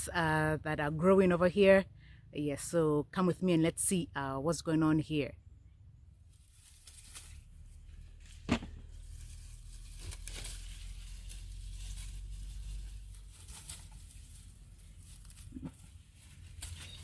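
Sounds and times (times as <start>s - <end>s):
dry plants rustling underfoot: 6.0s - 17.0s.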